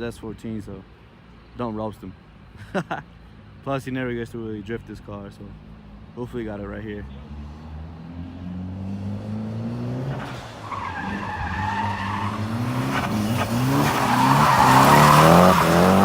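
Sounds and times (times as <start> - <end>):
car engine revving: 7.1 - 16.0
tyres squealing: 10.6 - 16.0.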